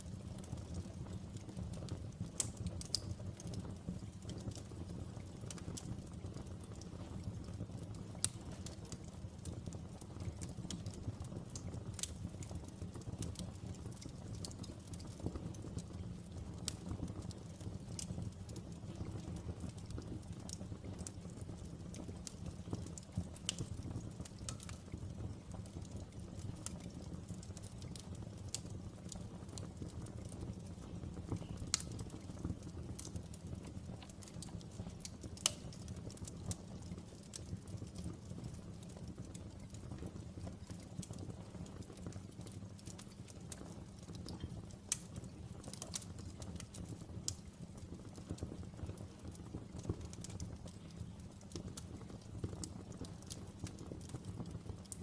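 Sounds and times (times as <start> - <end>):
fire crackling and popping: 0.0 - 55.0
wood fire rumble: 0.0 - 55.0.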